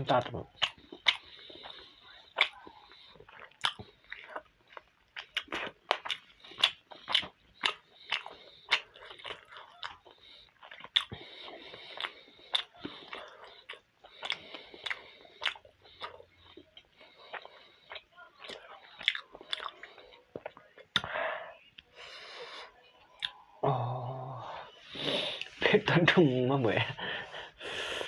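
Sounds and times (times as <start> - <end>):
chewing with wet mouth smacks: 0.1 - 21.2.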